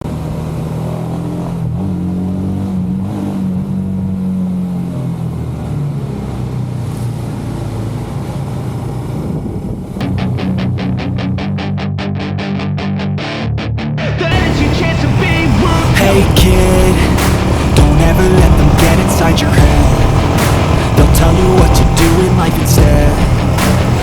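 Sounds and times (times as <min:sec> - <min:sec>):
motorcycle engine running: 0:14.3 - 0:24.0.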